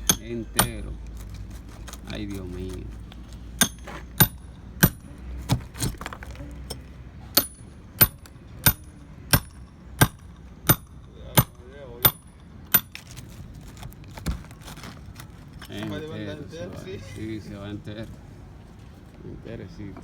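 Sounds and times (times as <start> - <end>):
hammer striking concrete: 0.0 - 0.9, 3.6 - 13.0.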